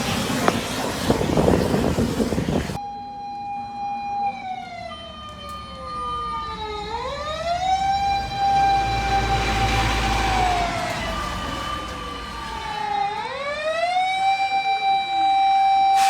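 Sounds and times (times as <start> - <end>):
loud rushing noise: 0.0 - 2.8
emergency vehicle siren wailing: 0.0 - 16.0.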